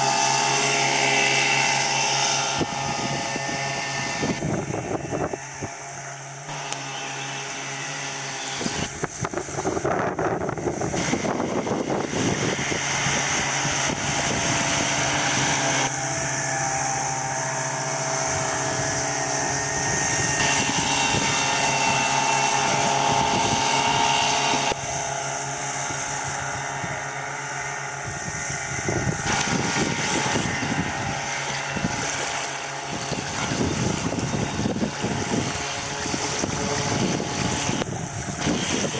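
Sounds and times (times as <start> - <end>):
wind noise on microphone: 0.0 - 6.7, 7.6 - 38.9
outboard motor running: 0.0 - 38.9.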